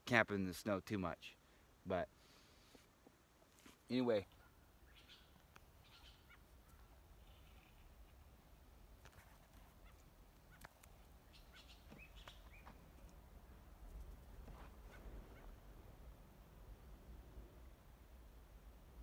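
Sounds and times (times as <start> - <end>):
faint bird calls: 4.2 - 8.1, 9.3 - 15.7.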